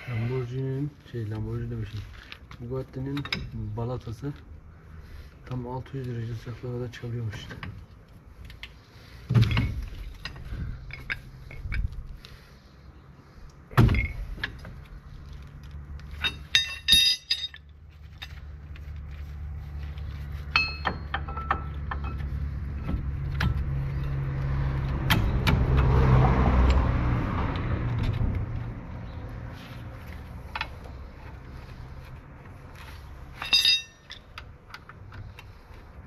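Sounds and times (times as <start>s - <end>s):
ringing metal clink: 16.2s - 17.6s, 33.4s - 34.2s
workshop tool knocks and clicks: 20.5s - 22.2s.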